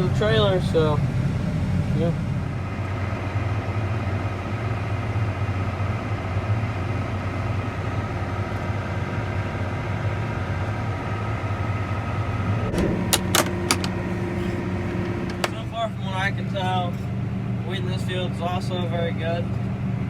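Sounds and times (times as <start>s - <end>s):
tractor engine droning: 0.0s - 19.0s
sharp clicks: 12.7s - 14.2s, 14.9s - 15.6s.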